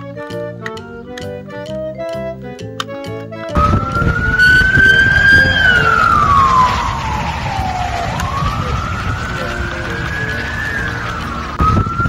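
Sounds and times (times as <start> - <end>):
organ-like music notes: 0.0 - 12.0
emergency vehicle siren wailing: 3.5 - 12.0
low rumble: 3.6 - 12.0.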